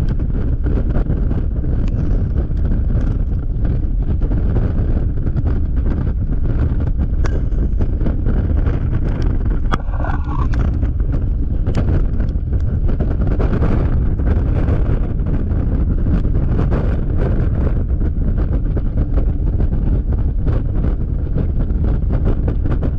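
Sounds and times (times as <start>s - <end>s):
wind buffeting microphone: 0.0s - 22.9s.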